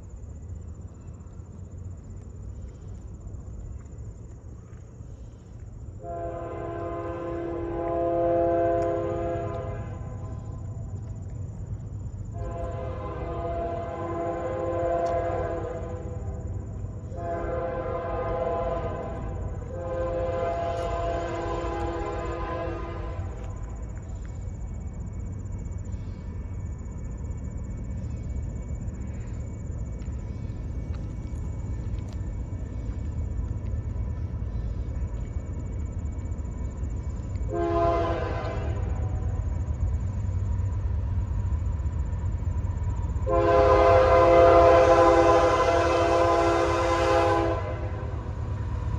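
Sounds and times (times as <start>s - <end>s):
train engines and wheels rumbling: 0.0s - 48.9s
locomotive air horn blasts: 6.0s - 10.6s, 12.3s - 23.7s, 37.5s - 39.4s, 43.2s - 48.3s.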